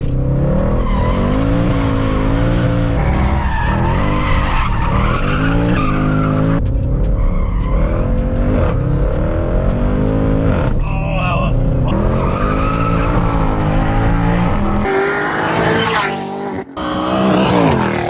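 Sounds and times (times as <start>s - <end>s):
car engine revving: 0.0s - 18.0s
tyres squealing: 3.0s - 6.6s, 11.8s - 18.0s.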